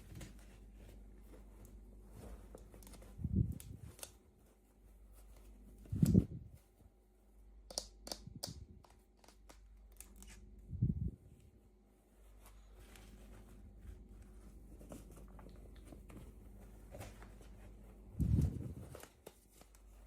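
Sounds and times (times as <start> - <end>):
plastic clicks and snips: 7.7 - 10.2.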